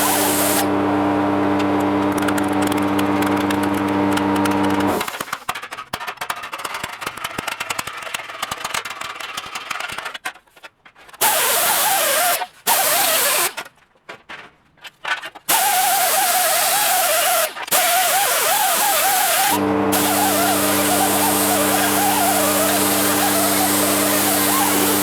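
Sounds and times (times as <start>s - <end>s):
machine motor running: 0.0s - 5.1s, 18.4s - 25.0s
crackling clicks: 1.8s - 11.2s.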